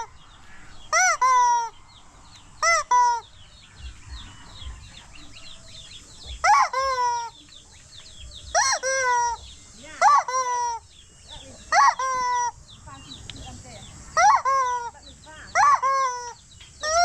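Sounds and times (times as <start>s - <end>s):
rubber chicken toy squealing: 6.4s - 7.3s, 8.5s - 9.4s, 10.0s - 10.8s, 14.2s - 14.9s, 15.6s - 17.0s.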